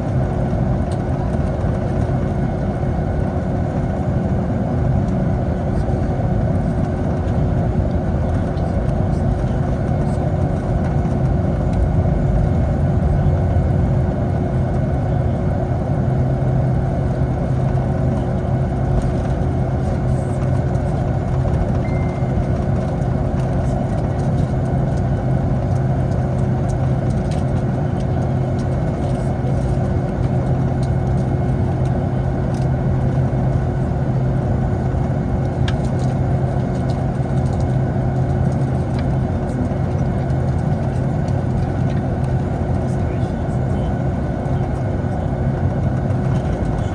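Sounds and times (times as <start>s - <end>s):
low engine hum: 0.0s - 46.9s.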